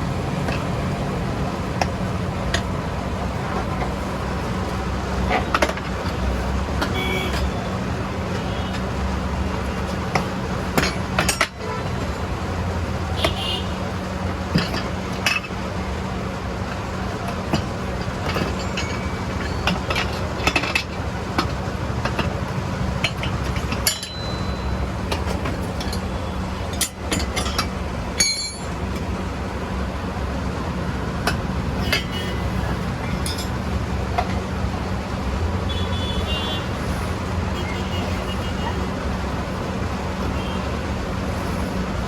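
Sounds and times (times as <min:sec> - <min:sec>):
hand tools clinking on metal: 0:17.2 - 0:29.0, 0:31.2 - 0:34.4.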